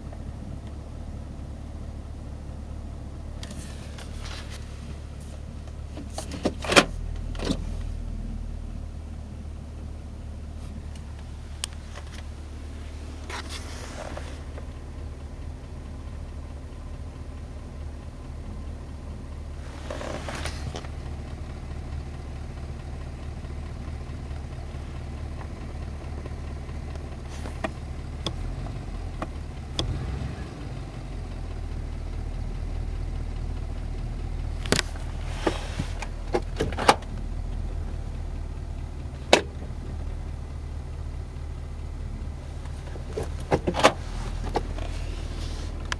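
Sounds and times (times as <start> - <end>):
car engine idling: 0.0 - 45.9
engine tapping: 8.7 - 45.9
brief hissing: 13.4 - 14.4.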